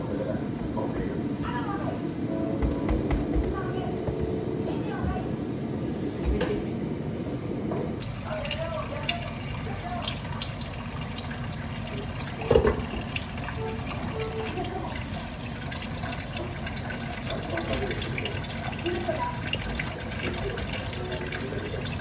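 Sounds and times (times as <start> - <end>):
knock: 2.6 - 4.2
tap running into sink: 12.2 - 14.6.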